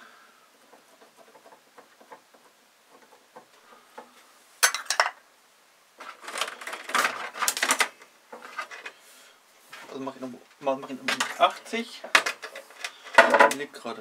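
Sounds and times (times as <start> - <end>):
metal pieces clinking and rattling: 4.6 - 5.2.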